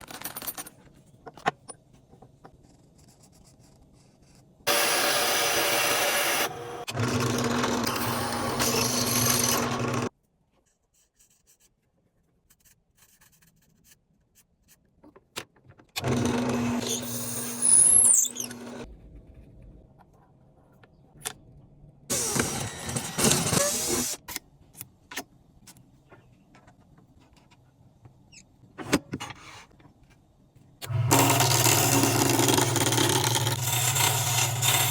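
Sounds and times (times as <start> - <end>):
woodworking power tool running: 4.7 - 10.1, 16.0 - 18.8, 30.9 - 34.9
tool high squeal: 16.8 - 18.8.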